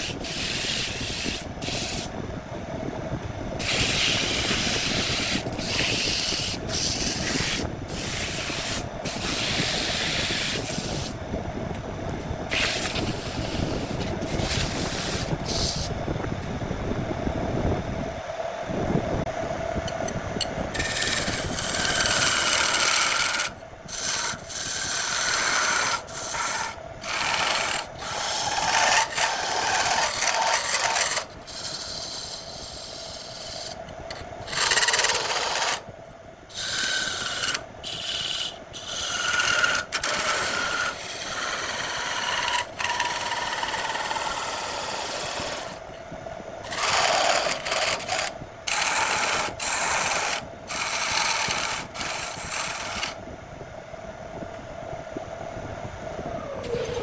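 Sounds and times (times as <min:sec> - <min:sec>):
lathe tool scraping spinning wood: 0:00.0 - 0:02.1, 0:03.6 - 0:11.2, 0:12.5 - 0:16.0, 0:20.7 - 0:35.8, 0:36.5 - 0:45.8, 0:46.6 - 0:53.2, 0:56.6 - 0:57.0.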